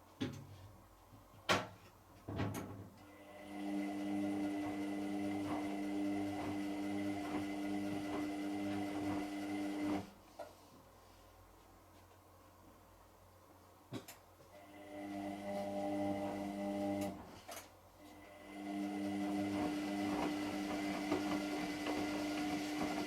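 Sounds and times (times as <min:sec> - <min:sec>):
washing machine motor humming: 0:03.2 - 0:10.1, 0:14.6 - 0:17.3, 0:18.2 - 0:23.0.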